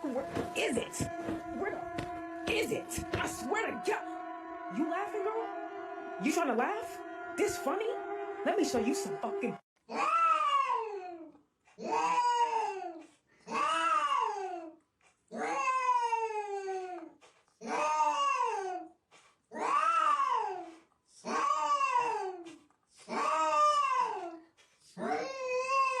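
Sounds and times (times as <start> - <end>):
cat yowling: 0.0 - 11.2, 11.8 - 12.8, 13.5 - 14.6, 15.4 - 16.9, 17.6 - 18.8, 19.6 - 20.7, 21.3 - 22.3, 23.1 - 24.4, 25.0 - 26.0.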